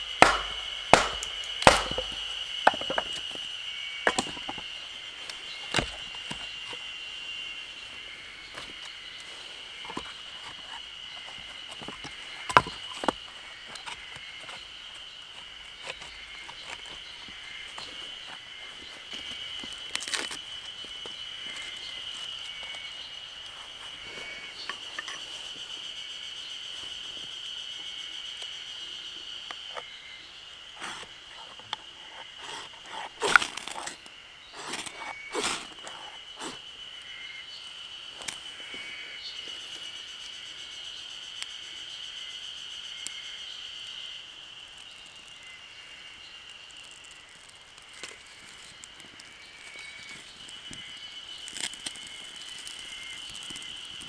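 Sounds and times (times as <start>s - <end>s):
sharp knocks and clicks: 0.0s - 3.4s.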